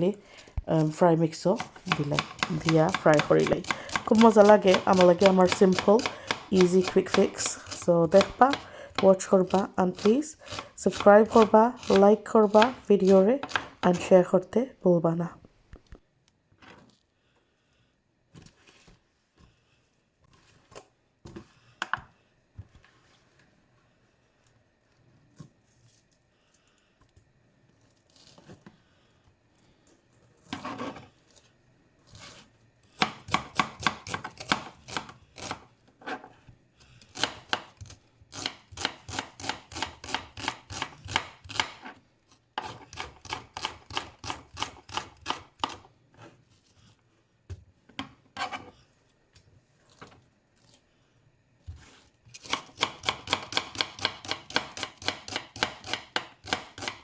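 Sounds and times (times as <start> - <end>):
knife chopping on cutting board: 1.6 - 13.8, 33.0 - 35.6, 37.2 - 41.9, 42.6 - 45.9, 52.4 - 57.0.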